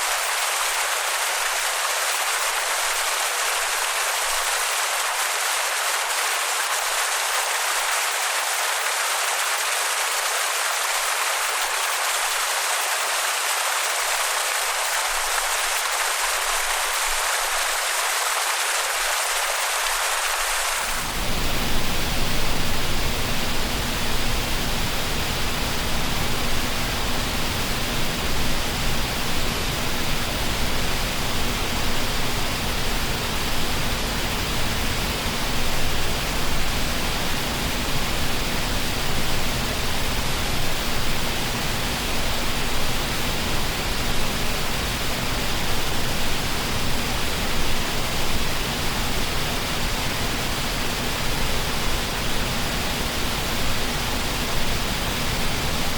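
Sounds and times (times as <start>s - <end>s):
waterfall rushing: 0.0s - 23.7s.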